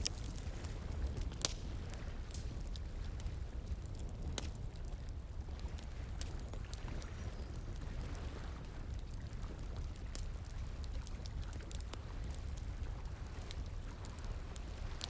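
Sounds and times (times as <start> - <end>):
wood fire crackling and popping: 0.0 - 5.9.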